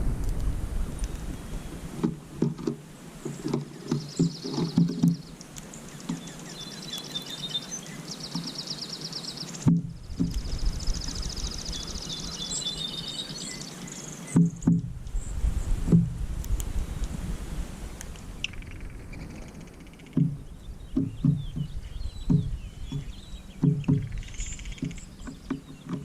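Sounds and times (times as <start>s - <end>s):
low knocks and thumps: 2.0s - 5.3s, 9.6s - 11.3s, 14.3s - 16.6s, 20.1s - 26.0s
songbird trilling: 3.2s - 15.4s, 18.4s - 26.0s.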